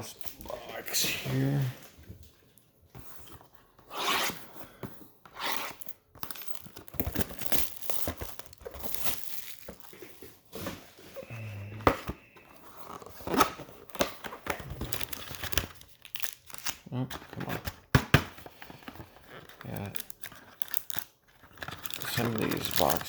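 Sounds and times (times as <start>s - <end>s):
foil packs crinkling: 5.8s - 10.5s, 12.7s - 17.8s, 18.5s - 23.0s.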